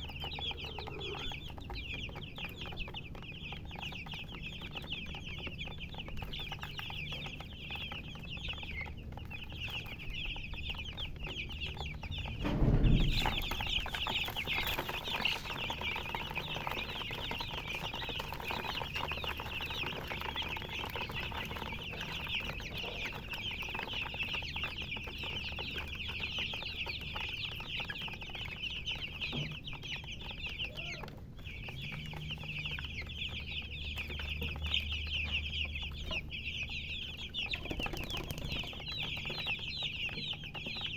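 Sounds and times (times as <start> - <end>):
baby chicks peeping: 0.0 - 40.9
loud low bump: 12.1 - 14.7.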